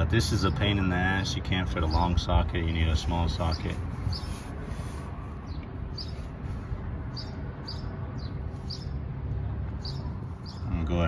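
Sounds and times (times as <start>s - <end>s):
bird chirping: 1.7s - 4.5s, 5.4s - 9.0s, 9.7s - 10.8s.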